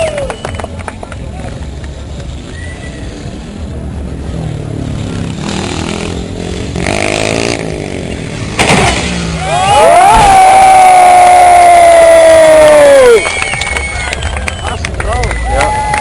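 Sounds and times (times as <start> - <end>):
motocross bike engine revving: 3.3 - 9.5.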